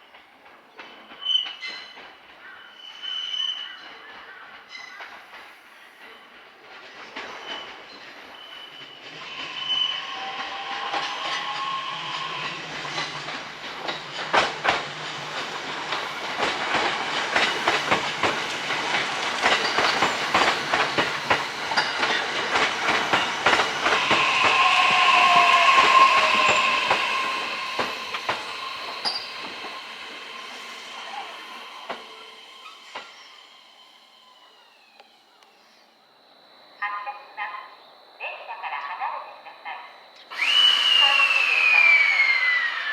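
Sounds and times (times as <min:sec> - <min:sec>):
electric train inverter whine: 0:07.4 - 0:37.1, 0:40.2 - 0:42.9
wheels clicking over rail joints: 0:10.2 - 0:33.2.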